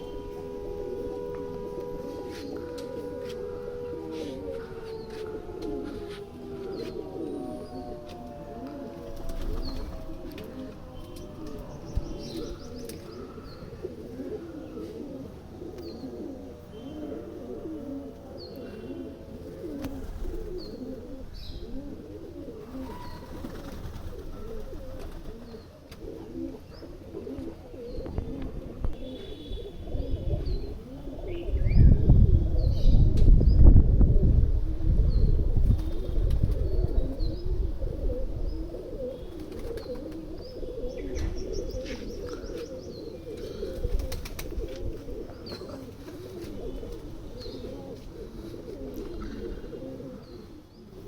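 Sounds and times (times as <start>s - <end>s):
pigeons cooing: 0.0s - 51.0s
small birds chirping: 11.0s - 15.0s, 38.5s - 44.4s.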